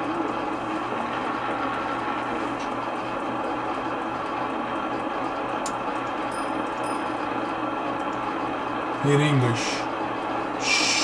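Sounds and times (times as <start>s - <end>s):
low hum: 0.0s - 9.0s
radio static hiss: 10.6s - 11.0s.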